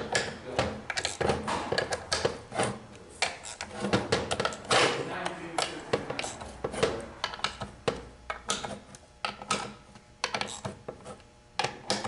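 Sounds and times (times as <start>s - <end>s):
metal parts and tools clicking: 0.9s - 2.3s.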